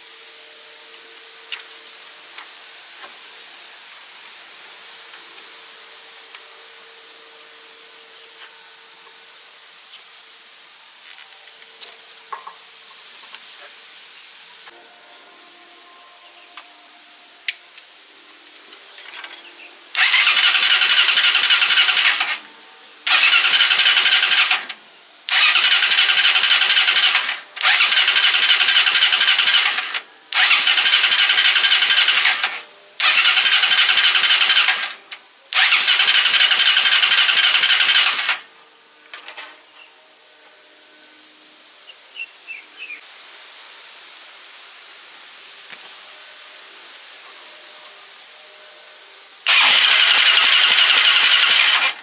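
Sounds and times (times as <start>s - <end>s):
engine starter cranking: 20.0s - 38.5s, 49.5s - 52.0s.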